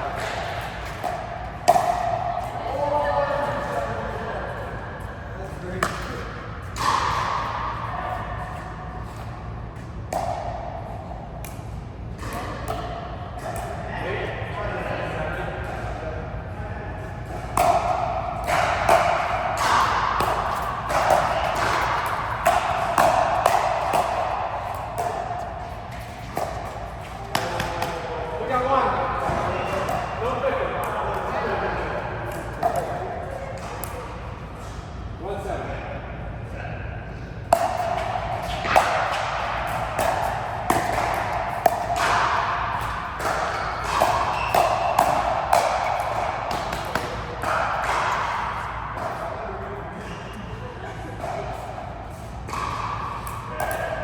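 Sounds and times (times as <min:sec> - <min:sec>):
ball and racket hits: 0:00.0 - 0:02.9, 0:05.7 - 0:13.8, 0:17.2 - 0:31.6, 0:37.5 - 0:49.4, 0:51.2 - 0:54.0.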